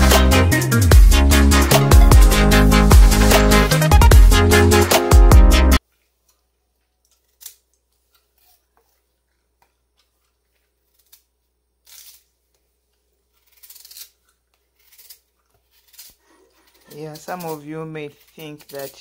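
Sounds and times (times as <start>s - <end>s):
knife scraping peeling vegetable: 7.1s - 19.0s.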